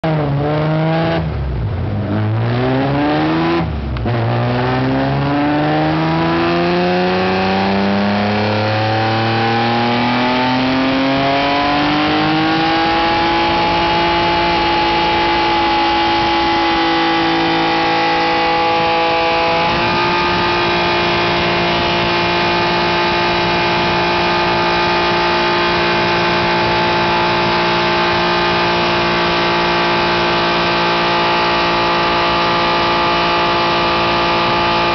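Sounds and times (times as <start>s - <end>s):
car engine revving on dyno: 0.0s - 34.9s.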